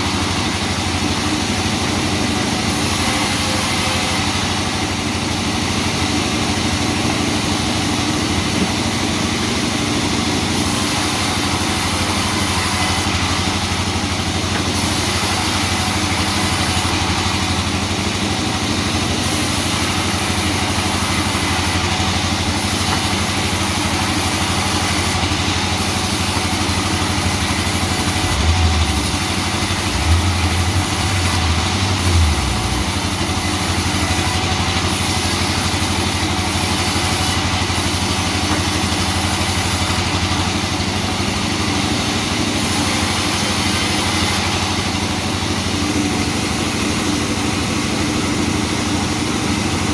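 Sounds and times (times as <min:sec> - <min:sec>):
sawmill machinery droning: 0:00.0 - 0:49.9
low rumbles: 0:28.5 - 0:33.4.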